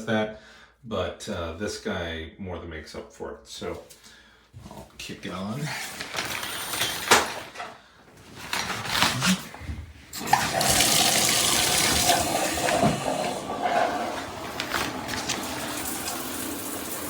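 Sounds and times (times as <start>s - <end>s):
shower water spraying: 10.2s - 17.0s.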